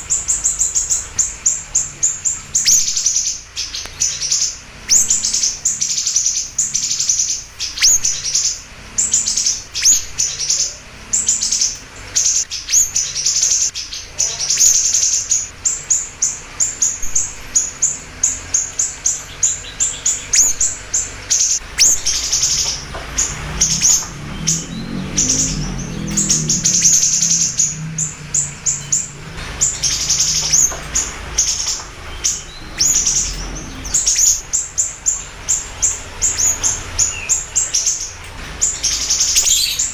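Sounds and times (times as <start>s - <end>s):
bird chirping rapidly: 0.0s - 39.9s
low rumble: 20.6s - 36.3s.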